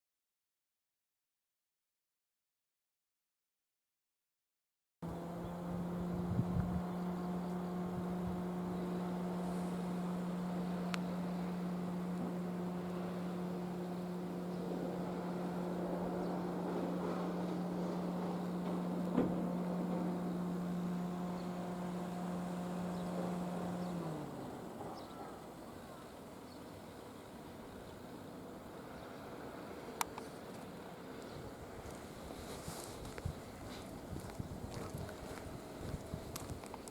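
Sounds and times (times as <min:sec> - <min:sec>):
low machine hum: 0:05.0 - 0:36.9
faint click: 0:30.0 - 0:31.4.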